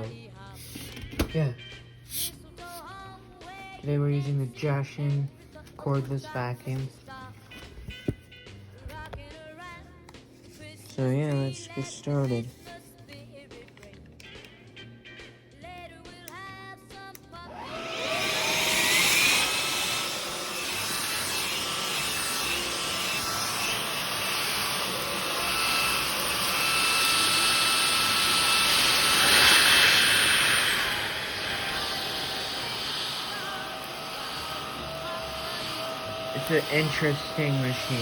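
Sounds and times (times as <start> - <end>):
cordless vacuum cleaner running: 17.5 - 38.0.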